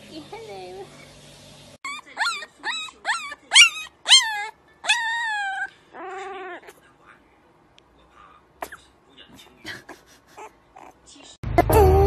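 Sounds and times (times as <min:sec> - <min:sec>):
puppy yipping: 0:01.8 - 0:06.8
puppy howling: 0:01.9 - 0:06.7.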